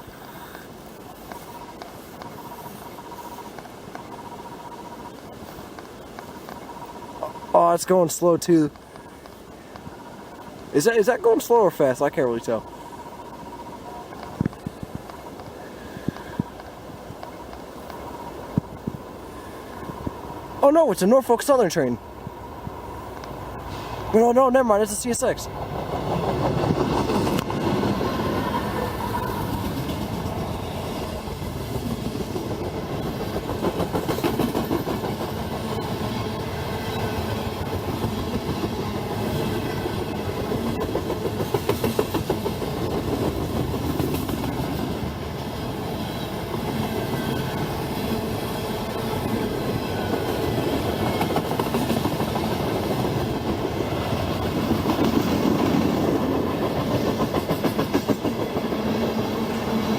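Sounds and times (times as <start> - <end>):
freight train wheels clattering: 24.9 - 59.9.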